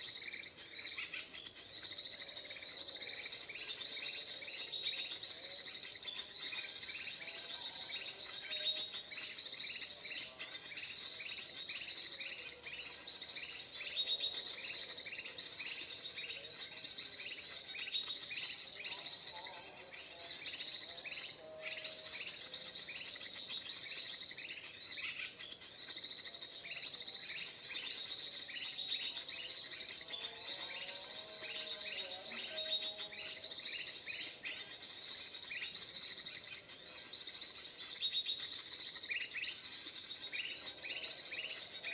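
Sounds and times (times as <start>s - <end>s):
recorded bird chirping: 0.0s - 41.9s.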